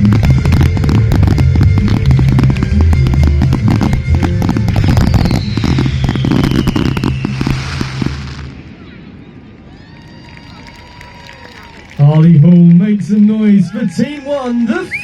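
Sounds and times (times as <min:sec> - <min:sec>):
music with heavy bass line: 0:00.0 - 0:08.4
firework bangs and crackles: 0:00.0 - 0:12.0
high whistle-like gliding tone: 0:04.8 - 0:08.0.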